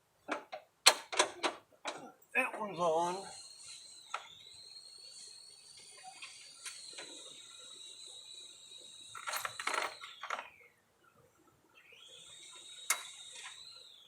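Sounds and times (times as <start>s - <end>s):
high-pitched insect-like whine: 3.0s - 10.5s, 11.9s - 14.0s.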